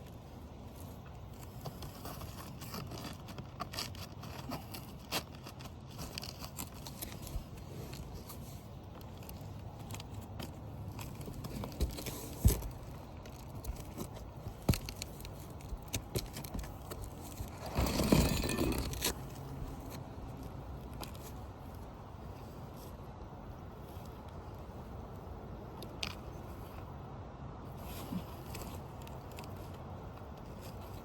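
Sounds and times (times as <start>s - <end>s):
shingle clicks and scrapes: 1.0s - 20.1s.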